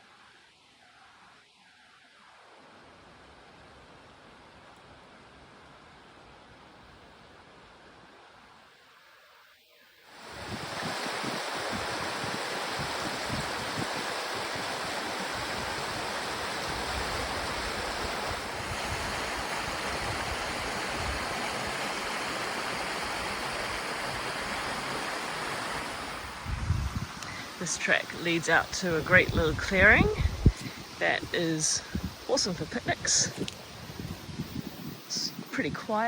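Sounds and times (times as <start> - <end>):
river water rushing: 10.1 - 34.3.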